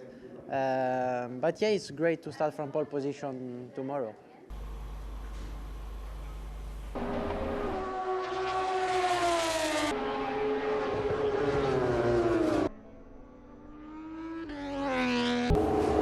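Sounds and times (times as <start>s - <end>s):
racing motorcycle engines revving: 4.5s - 16.0s.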